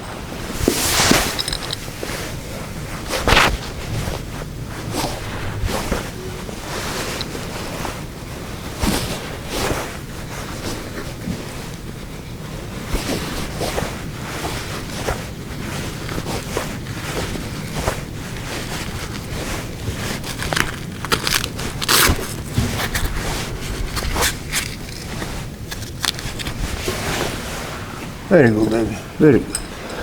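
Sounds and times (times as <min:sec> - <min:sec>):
wraps scraping and crackling: 0:00.5 - 0:29.0
wind on microphone: 0:02.7 - 0:08.7.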